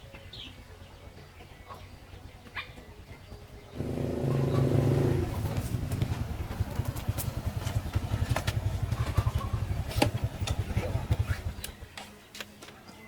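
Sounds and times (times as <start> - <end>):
small engine idling: 3.0 - 12.0.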